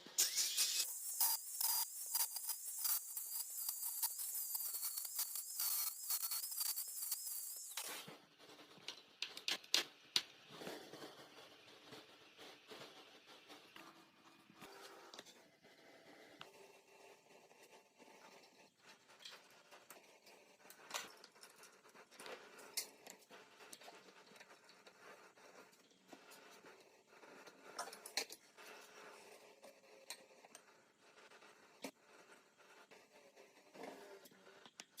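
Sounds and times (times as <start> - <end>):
tools scraping and clicking: 0.2 - 8.0.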